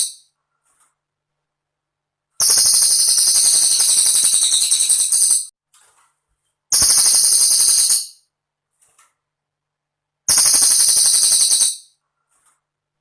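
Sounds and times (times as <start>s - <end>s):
bird high-pitched trills: 6.8s - 8.2s, 10.4s - 11.9s.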